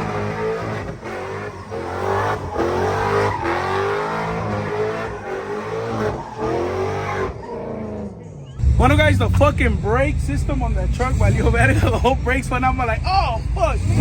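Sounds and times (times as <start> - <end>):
vehicle engine revving hard: 0.0 - 7.4, 13.4 - 14.0.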